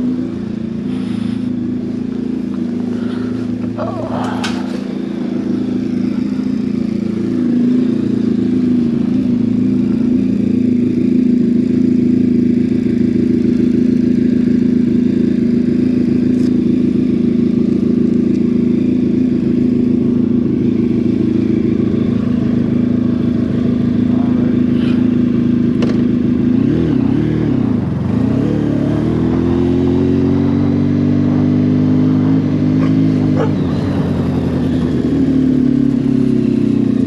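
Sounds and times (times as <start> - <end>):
motorcycle engine idling: 0.0 - 37.0.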